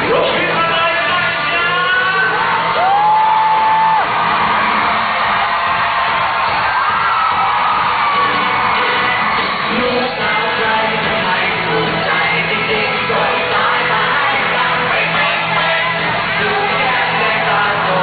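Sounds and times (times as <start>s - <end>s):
live pop music with singer: 0.0s - 18.0s
audience shouting and whooping: 1.5s - 10.6s.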